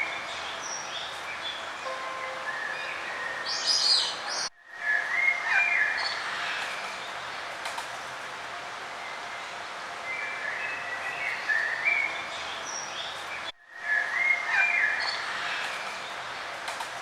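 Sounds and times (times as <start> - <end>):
songbirds chirping: 0.0 - 8.2, 8.8 - 16.7
outdoor background hiss: 0.0 - 17.0.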